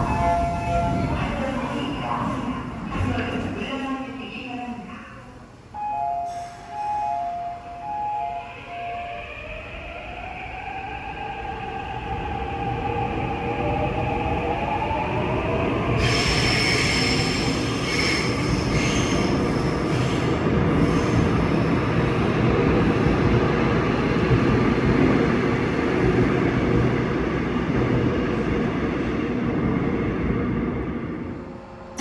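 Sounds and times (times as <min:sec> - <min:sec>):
rumble of wheels on rail: 0:00.0 - 0:04.5, 0:09.1 - 0:32.0.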